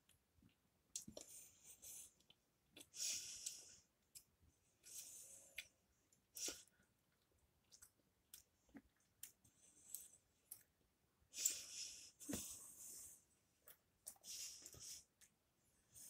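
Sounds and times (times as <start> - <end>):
slow breaths: 11.4 - 13.4.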